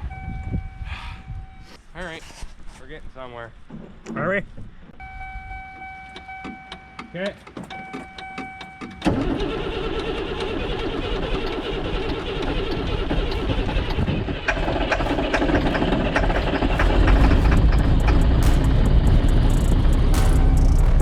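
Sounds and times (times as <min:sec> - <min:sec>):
diesel engine cranking and running: 0:05.8 - 0:21.0.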